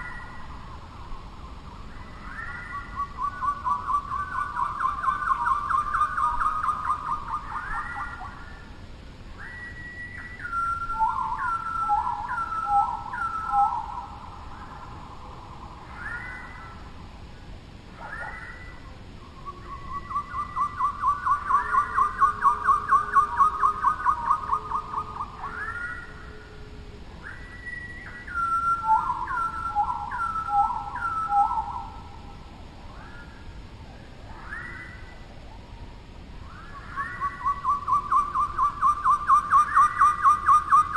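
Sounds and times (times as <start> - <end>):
songbird whistling: 1.4 - 8.6, 9.4 - 14.9, 15.9 - 16.8, 18.0 - 26.6, 27.2 - 32.1, 34.3 - 35.2, 36.4 - 40.9.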